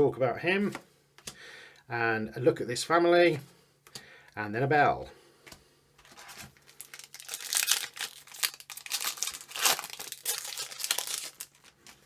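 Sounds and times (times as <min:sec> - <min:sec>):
wrapper crinkling and tearing: 0:06.1 - 0:12.0.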